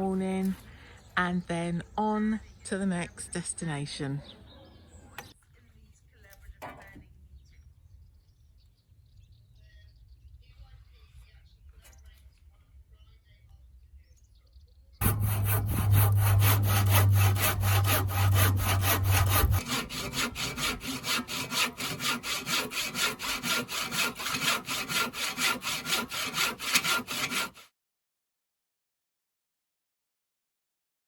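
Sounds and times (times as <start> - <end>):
low hum: 15.0 - 20.1
saw cutting wood: 15.0 - 27.7.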